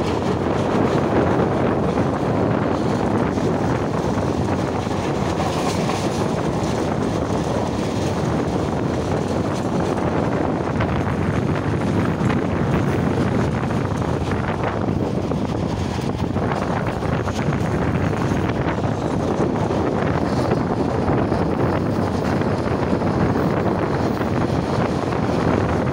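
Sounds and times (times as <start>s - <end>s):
train rumbling: 0.0s - 25.9s
wind rushing on microphone: 0.0s - 25.9s.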